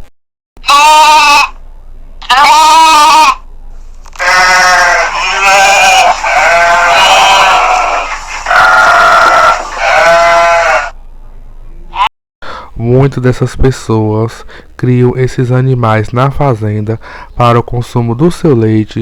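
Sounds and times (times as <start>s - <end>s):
sheep bleating: 0.6s - 1.6s, 2.2s - 3.4s, 4.1s - 11.0s.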